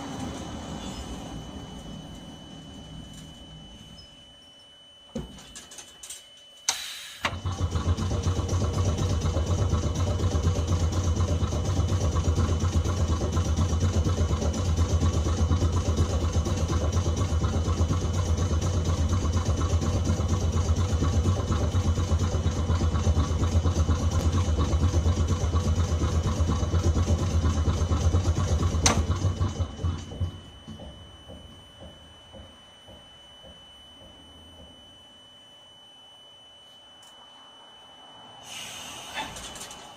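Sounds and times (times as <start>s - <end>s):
air compressor humming: 38.2s - 39.9s.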